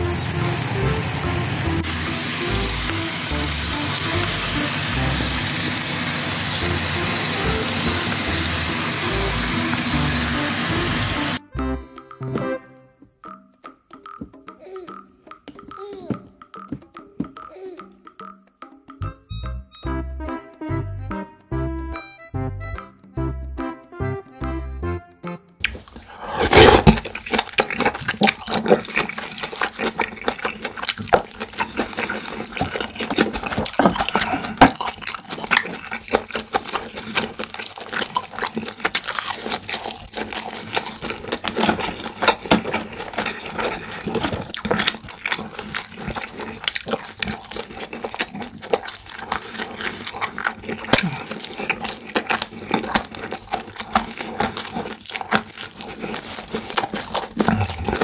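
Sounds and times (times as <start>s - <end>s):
wet chewing and mouth smacking: 1.6s - 11.4s, 25.6s - 58.0s.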